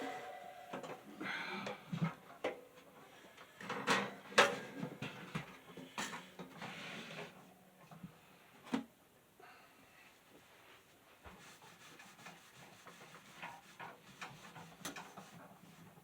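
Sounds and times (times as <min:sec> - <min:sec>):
rubbing and scraping: 0:11.3 - 0:16.0.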